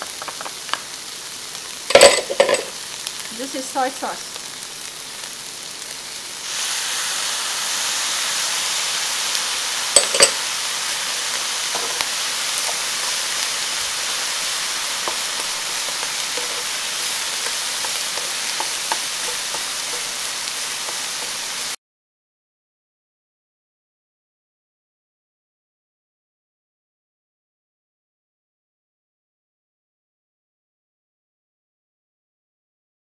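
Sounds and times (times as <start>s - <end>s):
food sizzling in a wok: 0.0s - 21.8s
spatula stirring and scraping: 11.7s - 21.8s.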